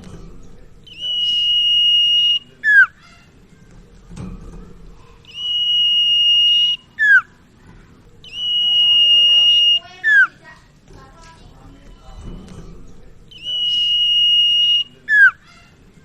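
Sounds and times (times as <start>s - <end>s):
songbird whistling: 0.8s - 3.2s, 5.2s - 7.4s, 8.2s - 10.4s, 13.3s - 15.7s.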